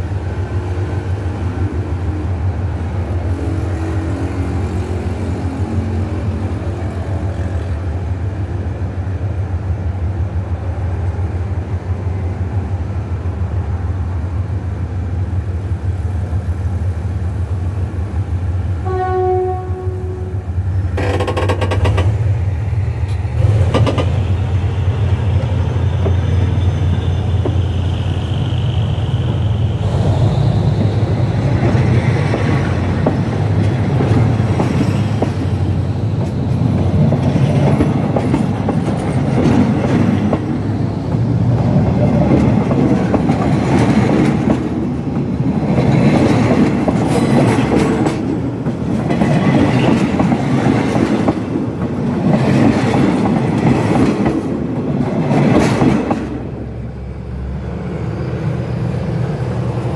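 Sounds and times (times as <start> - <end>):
steel wheels rumbling on rails: 0.0 - 59.9
clattering knocks of wheelsets: 21.0 - 22.2.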